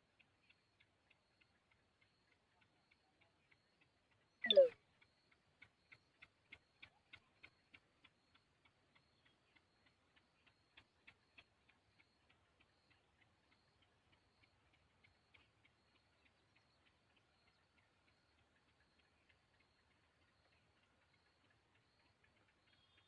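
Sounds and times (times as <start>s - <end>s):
faint regular ticking: 0.0s - 23.0s.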